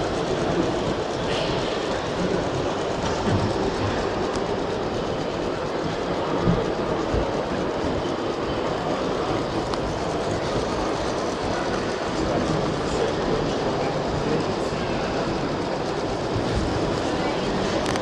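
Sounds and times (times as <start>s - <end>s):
exhibition hall noise: 0.0s - 18.0s
model trains clickety-clack: 0.0s - 18.0s.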